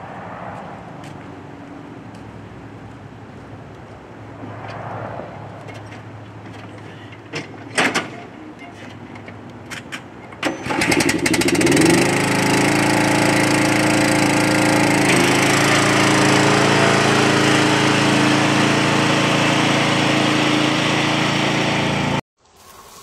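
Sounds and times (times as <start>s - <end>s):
vehicle engine cranking and starting: 10.4s - 12.6s.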